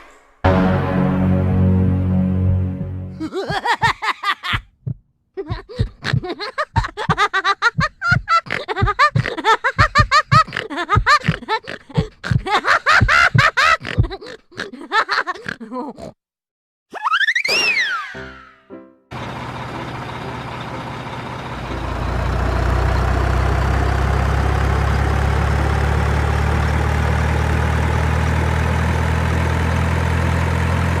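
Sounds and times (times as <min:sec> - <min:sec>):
whistle-like sound effect: 0:17.0 - 0:18.7.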